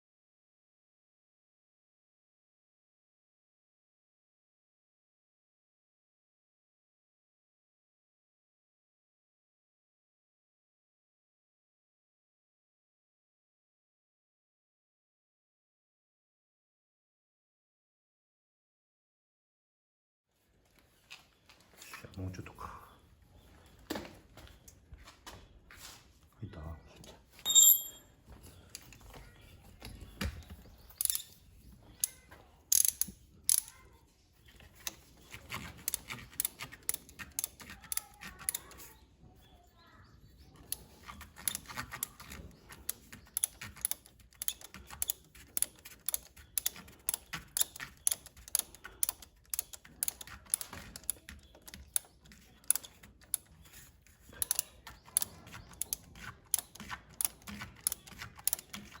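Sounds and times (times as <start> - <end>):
hand tools clicking on metal: 27.5 - 28.0, 31.0 - 31.4, 32.0 - 33.8, 34.8 - 38.9, 40.6 - 59.0.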